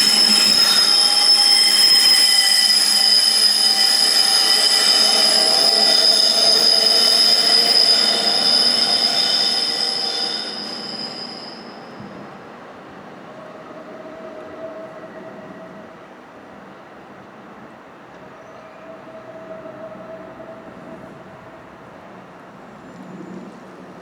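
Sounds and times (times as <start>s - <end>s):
train rolling rumble: 0.0s - 12.6s
train wheels squealing on rails: 0.0s - 24.0s.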